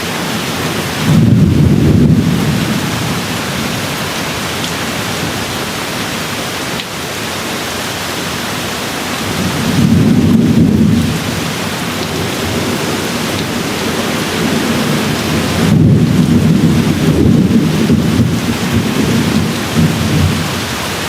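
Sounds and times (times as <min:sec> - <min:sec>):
steady rain: 0:00.0 - 0:21.0
thunder rumble: 0:01.0 - 0:05.8, 0:09.2 - 0:20.7.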